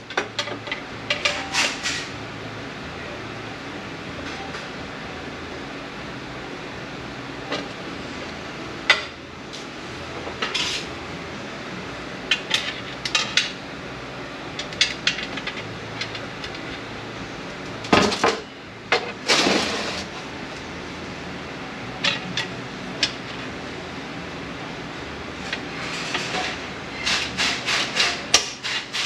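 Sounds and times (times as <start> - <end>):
steady low hum: 0.0 - 28.6.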